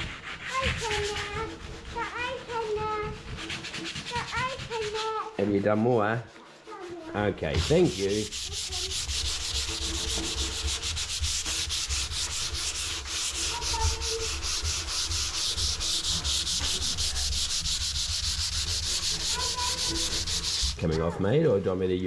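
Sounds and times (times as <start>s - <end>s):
sandpaper rubbing on wood: 0.0s - 21.2s.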